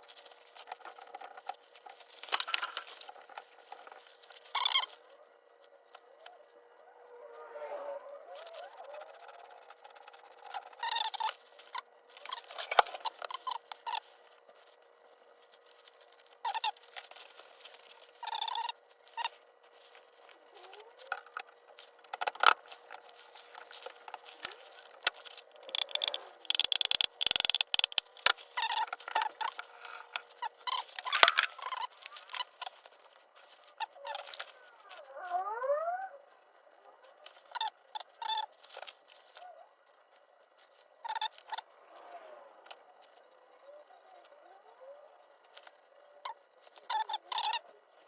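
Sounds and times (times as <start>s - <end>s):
parts rattling: 8.8s - 33.6s
metal parts clicking: 23.5s - 32.6s.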